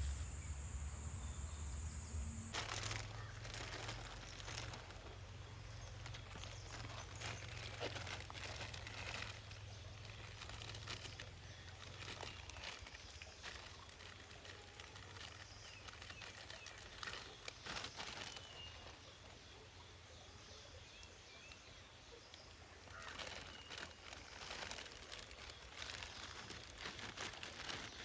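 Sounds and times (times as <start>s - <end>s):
faint bird call: 0.0s - 3.9s
plastic wrapper crinkling: 2.2s - 5.2s, 5.8s - 19.2s, 22.9s - 28.0s.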